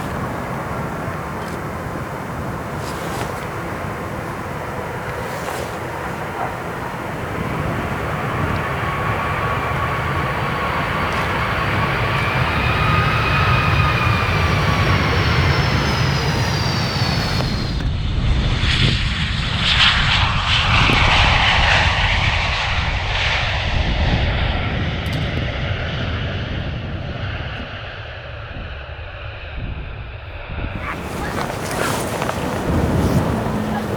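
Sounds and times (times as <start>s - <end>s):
jet engine rushing roar: 0.0s - 17.8s, 30.8s - 33.9s
jet engine whine: 0.0s - 33.9s.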